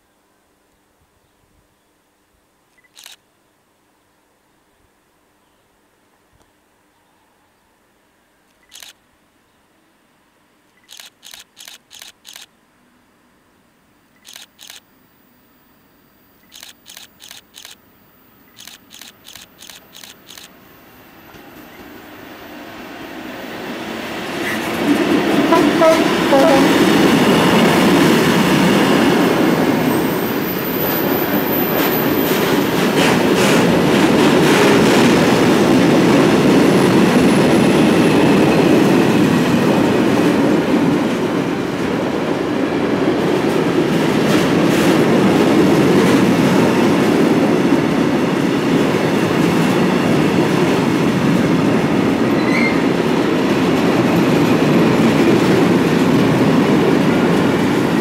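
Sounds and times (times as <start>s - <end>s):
steel wheels rumbling on rails: 21.2s - 58.0s
wheels clacking over rail joints: 24.1s - 37.2s.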